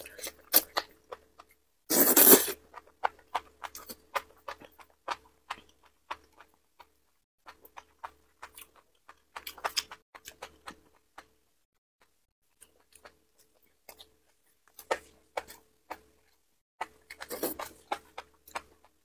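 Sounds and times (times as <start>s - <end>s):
loud slurp: 1.9s - 2.6s
wet chewing with clicks: 2.6s - 11.4s, 12.0s - 19.0s.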